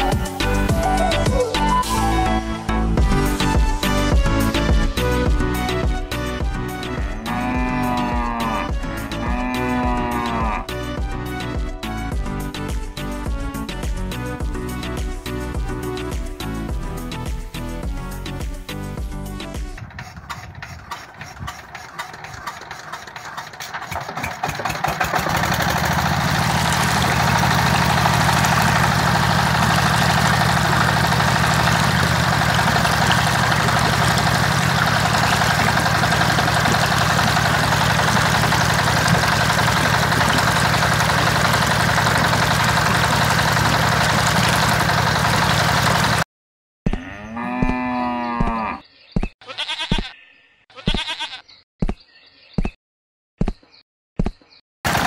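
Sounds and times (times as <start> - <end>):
cow mooing: 7.0 - 10.8, 46.9 - 48.8
diesel engine cranking and running: 19.8 - 46.3.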